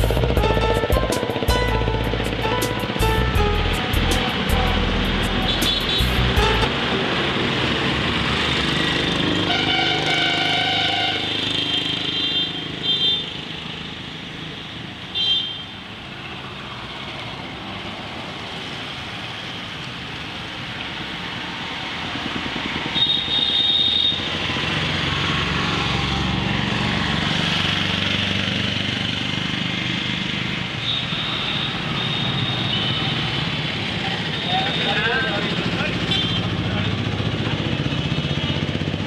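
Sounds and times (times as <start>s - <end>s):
motorcycle engine and road noise: 0.0s - 39.0s
vehicle horns honking: 3.5s - 6.7s, 9.4s - 13.3s, 15.1s - 15.8s, 23.0s - 24.2s, 30.8s - 33.4s, 36.0s - 36.6s.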